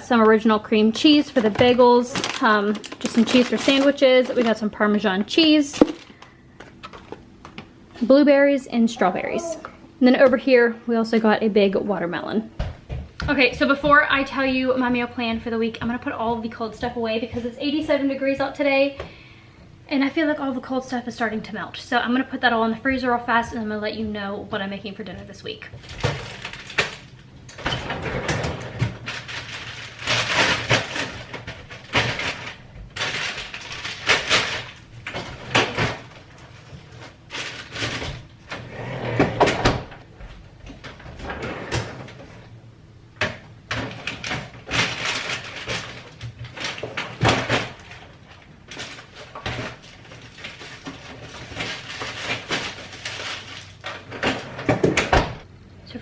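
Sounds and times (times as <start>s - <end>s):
packages being moved and set down: 1.0s - 7.7s, 25.8s - 42.2s, 43.7s - 55.2s
fridge doors opening and closing: 25.7s - 55.5s.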